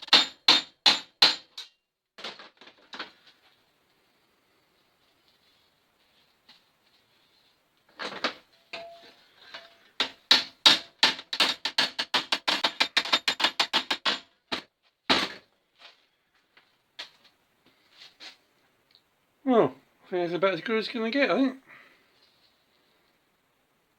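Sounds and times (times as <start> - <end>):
hammer tapping sheet steel: 0.0 - 1.8.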